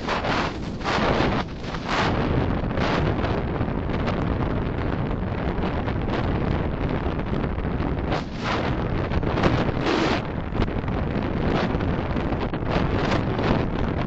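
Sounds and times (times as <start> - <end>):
car road and wind noise: 0.0 - 14.0.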